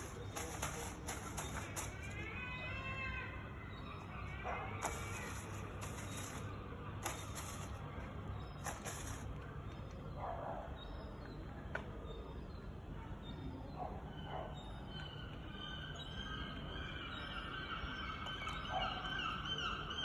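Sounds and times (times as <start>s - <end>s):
hissing rustles: 0.0s - 2.2s, 4.8s - 7.8s, 8.6s - 9.4s.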